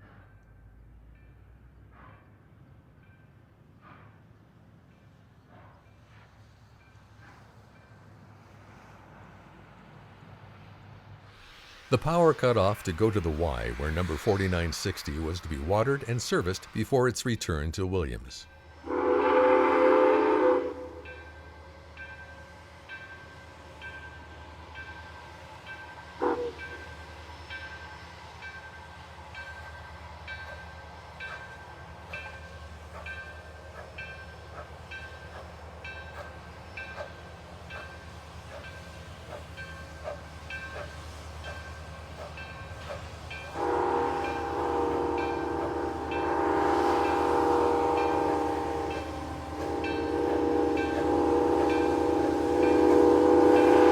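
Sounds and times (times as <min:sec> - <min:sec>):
hiss of steam: 0:11.1 - 0:17.2, 0:36.2 - 0:53.9
steam locomotive rhythmic clicking: 0:11.2 - 0:53.9
steam whistle: 0:18.8 - 0:21.2, 0:26.2 - 0:26.8, 0:43.5 - 0:53.9.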